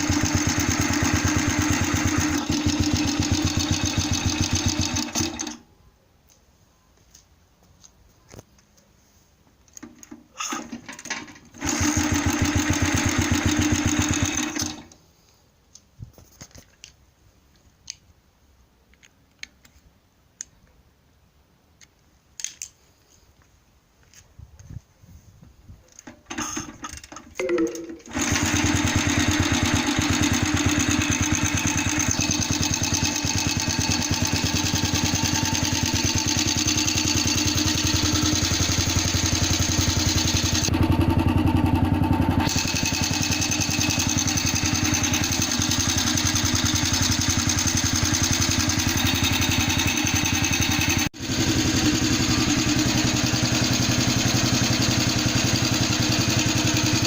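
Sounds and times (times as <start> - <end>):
two-stroke engine starting and running: 0.0 - 5.6, 10.4 - 15.0, 26.0 - 57.0.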